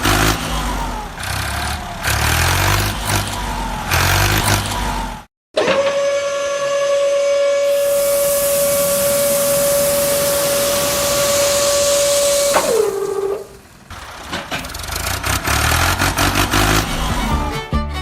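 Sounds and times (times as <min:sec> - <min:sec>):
whistle-like tone: 0:06.0 - 0:13.6
loud hiss: 0:07.6 - 0:13.9.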